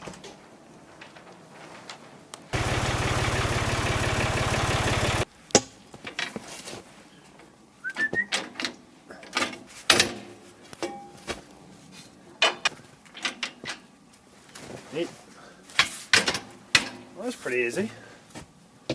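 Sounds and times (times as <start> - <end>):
motor running with fast pulse: 2.6 - 5.2.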